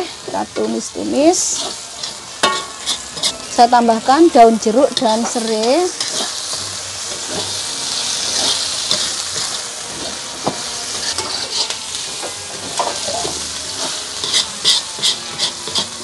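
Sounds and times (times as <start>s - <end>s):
spice paste sizzling in oil: 0.0s - 16.0s
utensil scraping a pan: 4.9s - 16.0s.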